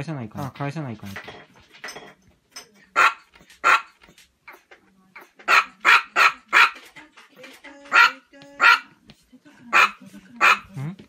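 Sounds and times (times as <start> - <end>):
small dog yapping: 3.0 - 6.9, 7.9 - 8.9.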